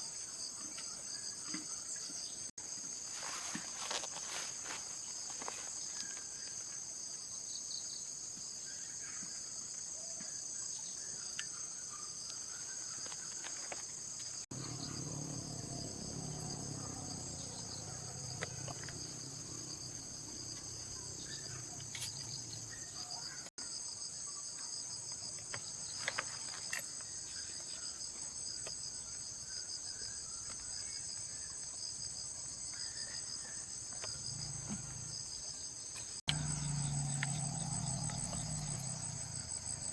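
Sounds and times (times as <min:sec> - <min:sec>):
high pulsing insect chorus: 0:10.3 - 0:24.4, 0:25.6 - 0:39.9.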